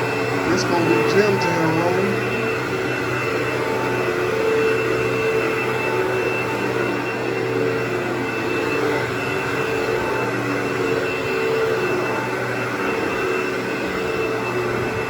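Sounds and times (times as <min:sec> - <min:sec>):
high whine: 0:00.0 - 0:07.3
carpet cleaning machine droning: 0:00.0 - 0:15.0.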